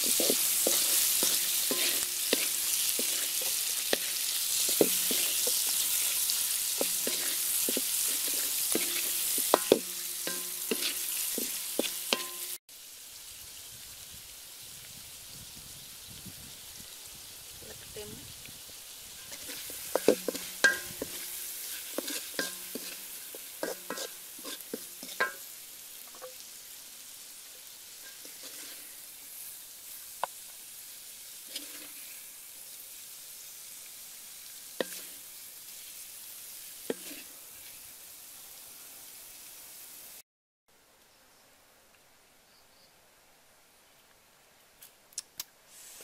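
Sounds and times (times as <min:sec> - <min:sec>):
eggs sizzling in a wok: 0:00.0 - 0:40.2, 0:45.7 - 0:46.0
wooden spoon knocking on wok: 0:04.7 - 0:05.7, 0:09.4 - 0:12.6, 0:19.9 - 0:21.2, 0:22.0 - 0:22.9, 0:24.8 - 0:25.4.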